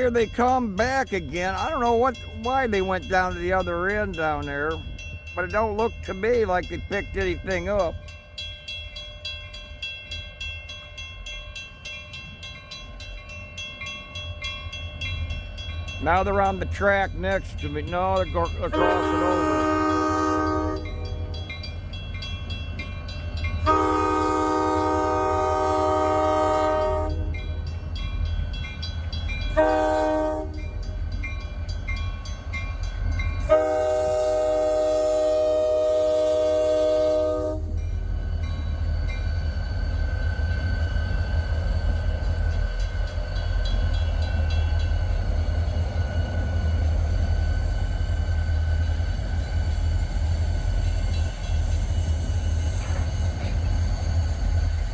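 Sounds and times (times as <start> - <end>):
train rumbling: 0.0 - 54.9
locomotive chime horn blasts: 18.6 - 21.6, 23.6 - 27.6, 29.5 - 30.8, 33.4 - 37.8.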